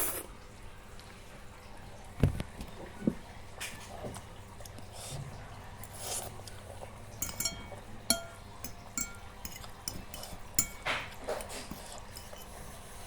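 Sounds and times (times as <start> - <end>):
cutlery clinking against dish: 7.2 - 12.7.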